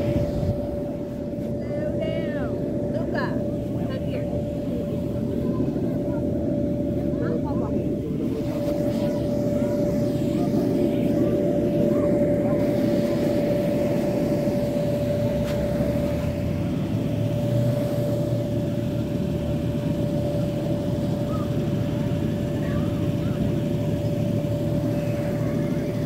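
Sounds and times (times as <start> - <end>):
mechanical drone with high hum: 0.0 - 26.0.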